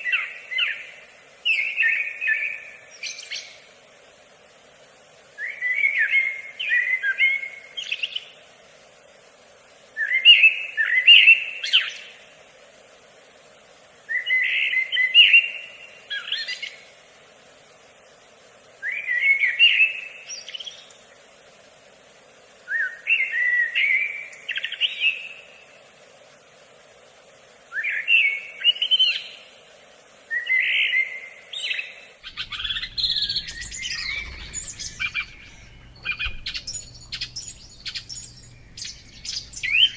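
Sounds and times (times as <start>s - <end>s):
songbird singing warbled phrase: 30.4s - 39.9s
overlapping bird chirping: 32.2s - 39.9s.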